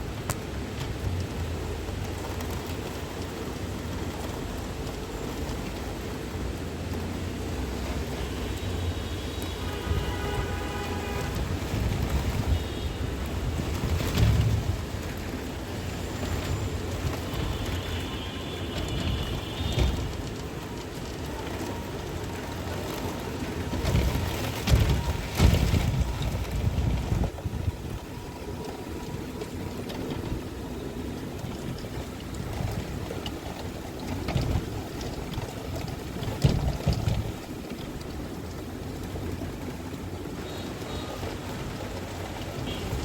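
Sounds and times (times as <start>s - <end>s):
wind gusts rumbling on microphone: 0.0s - 43.0s.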